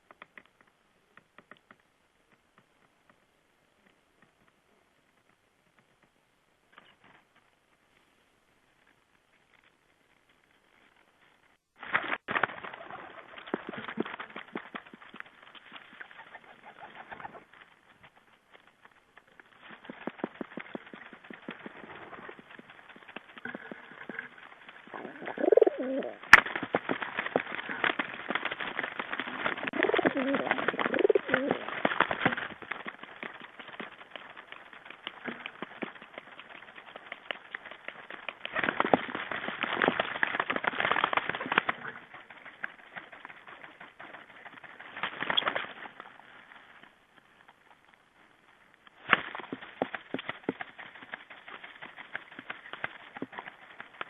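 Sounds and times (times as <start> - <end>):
small clicks and taps: 0.0 - 7.5
rustling: 0.0 - 54.0.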